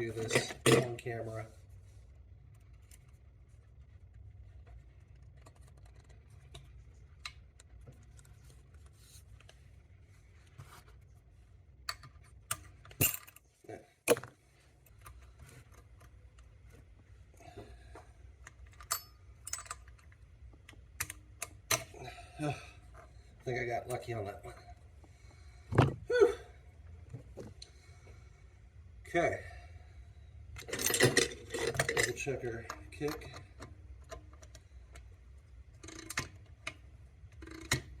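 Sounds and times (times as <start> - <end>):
light metallic clicks and clinks: 18.4 - 20.2.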